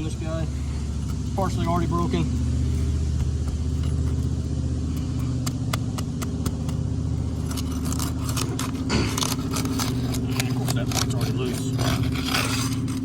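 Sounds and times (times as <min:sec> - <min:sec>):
engine humming: 0:00.0 - 0:13.0
flat bar prying shingles: 0:03.1 - 0:13.0.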